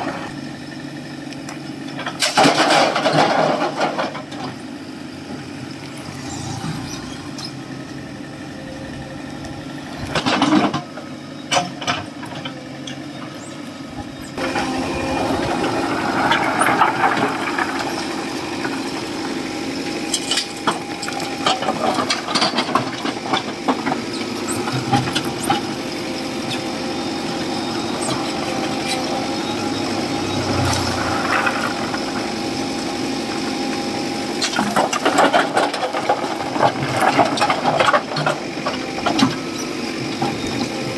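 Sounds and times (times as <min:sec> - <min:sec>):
diesel engine running: 0:00.0 - 0:40.9
clanks and rattles: 0:01.9 - 0:04.6, 0:10.0 - 0:13.0, 0:20.1 - 0:25.7, 0:34.4 - 0:39.4.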